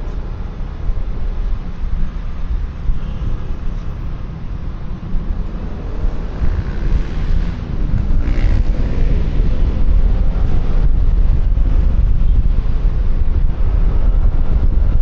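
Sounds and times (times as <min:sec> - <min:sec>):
road noise: 0:00.0 - 0:15.0
wind rumbling on microphone: 0:00.0 - 0:15.0.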